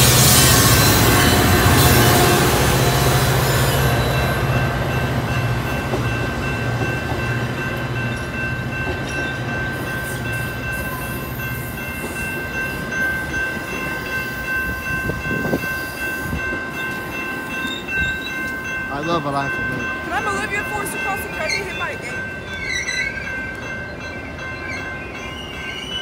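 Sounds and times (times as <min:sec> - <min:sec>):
diesel locomotive engine rumbling: 0:00.0 - 0:26.0
train coaches rolling past: 0:00.0 - 0:26.0.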